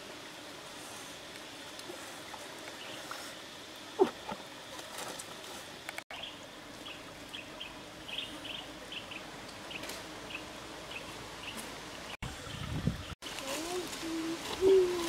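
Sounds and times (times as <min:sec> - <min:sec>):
outdoor background hiss: 0:00.0 - 0:15.0
bird chirping: 0:06.1 - 0:13.2.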